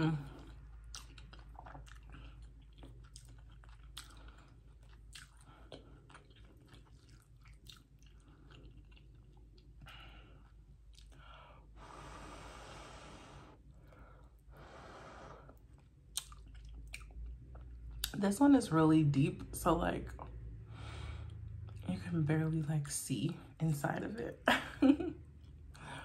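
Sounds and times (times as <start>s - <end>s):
chewing soft food: 0.1s - 11.4s, 15.5s - 18.2s
wet mouth clicks: 16.1s - 18.2s.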